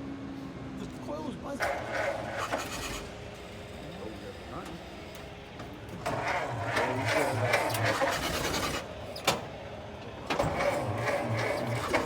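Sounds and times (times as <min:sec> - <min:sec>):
engine cranking by electric starter: 0:01.6 - 0:03.1, 0:06.1 - 0:08.9, 0:10.4 - 0:12.0.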